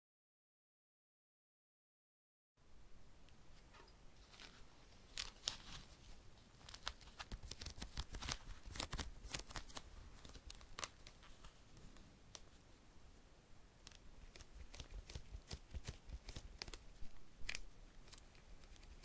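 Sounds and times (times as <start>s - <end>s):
crinkling tearing rustles: 4.2s - 11.6s.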